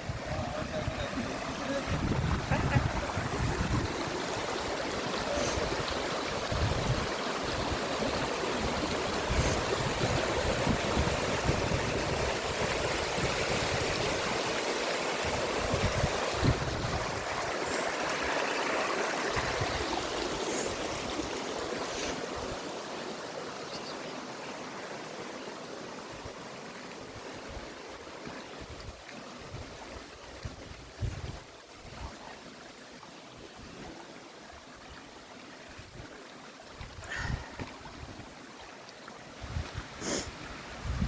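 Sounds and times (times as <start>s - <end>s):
stream water rushing over rocks: 0.0s - 41.0s.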